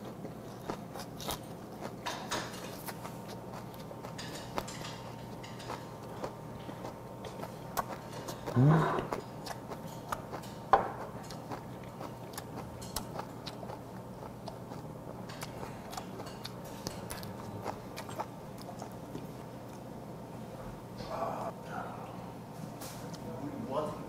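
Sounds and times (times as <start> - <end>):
man chewing: 0.0 - 20.1
man humming mm: 8.5 - 9.2, 21.0 - 22.1.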